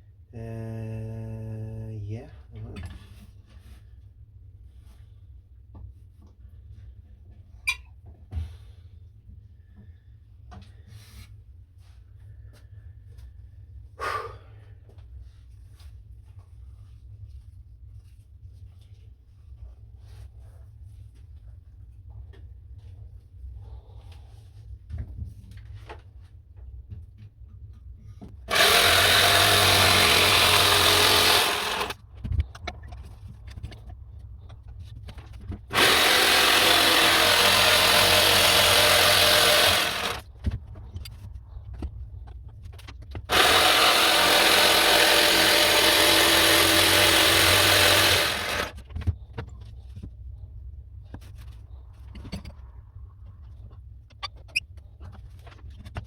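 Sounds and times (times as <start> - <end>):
power tool cutting wood: 28.4 - 32.0, 35.7 - 40.2, 43.3 - 48.8.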